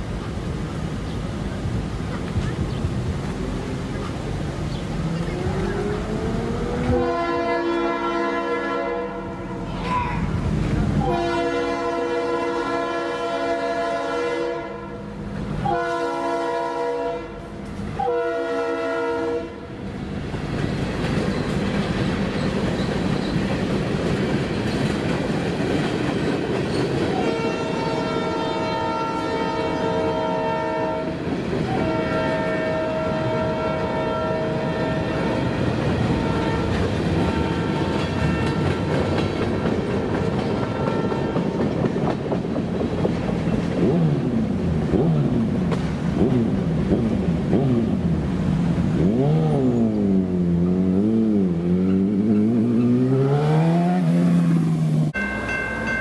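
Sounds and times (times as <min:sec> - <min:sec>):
freight cars rumbling past: 0:00.0 - 0:12.0, 0:19.5 - 0:56.0
train horn blasts: 0:06.8 - 0:09.7, 0:11.0 - 0:19.8, 0:27.1 - 0:41.8
wheel clickety-clack: 0:20.5 - 0:27.2, 0:35.8 - 0:47.7.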